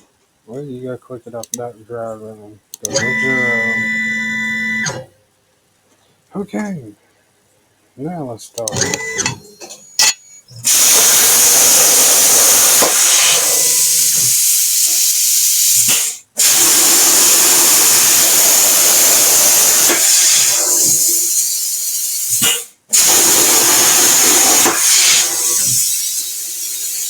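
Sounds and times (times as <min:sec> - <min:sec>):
plasma cutter torch hissing: 0:10.6 - 0:27.0
torch click: 0:12.6 - 0:14.4.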